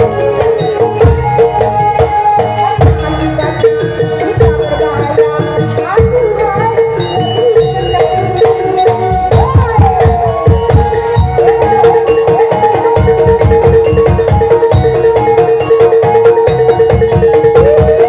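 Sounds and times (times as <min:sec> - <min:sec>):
wailing sliding melody: 0:00.0 - 0:06.6
hand drums beating: 0:00.0 - 0:18.0
metallophone notes: 0:00.0 - 0:18.0.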